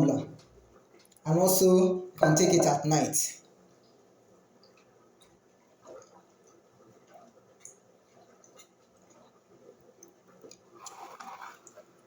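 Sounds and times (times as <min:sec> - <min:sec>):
sipping and swallowing: 0:04.6 - 0:09.4, 0:10.0 - 0:12.0.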